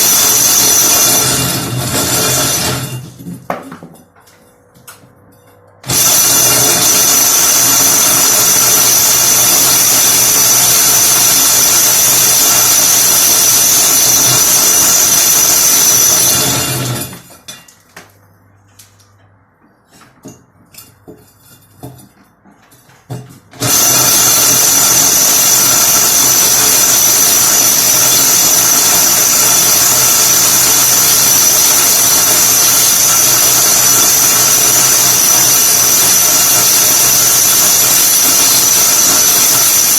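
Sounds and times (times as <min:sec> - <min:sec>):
electric drill boring into wall: 0:00.0 - 0:03.3, 0:05.8 - 0:17.4, 0:23.6 - 0:39.9.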